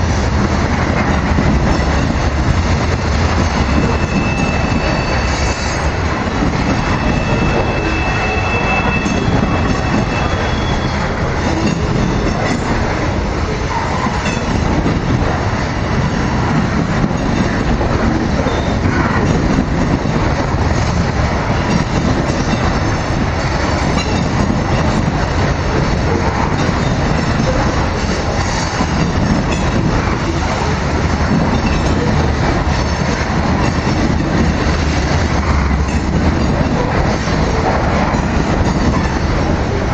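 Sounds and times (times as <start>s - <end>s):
train wheels rumbling on rail: 0.0s - 39.9s
high wheel squeal: 3.7s - 6.0s, 6.6s - 11.2s
clacking over rail joints: 11.2s - 39.9s.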